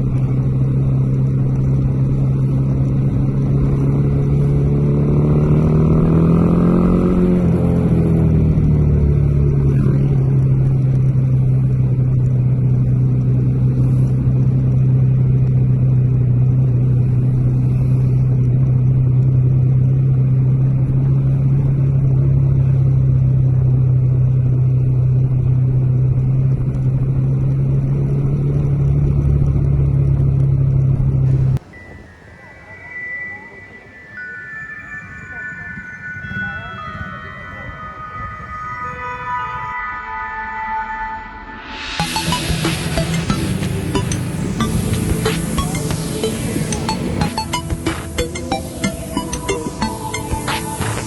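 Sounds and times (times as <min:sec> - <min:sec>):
motorcycle engine running: 0:00.0 - 0:31.6, 0:42.0 - 0:51.0.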